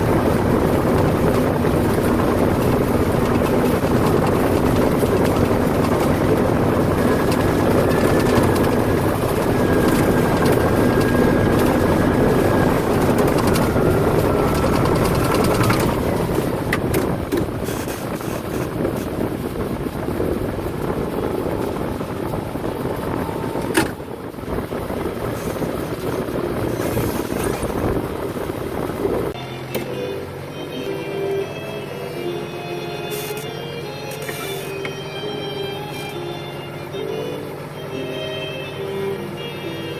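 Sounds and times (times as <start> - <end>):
heavy machinery engine running: 0.0 - 39.9
music: 29.4 - 39.9.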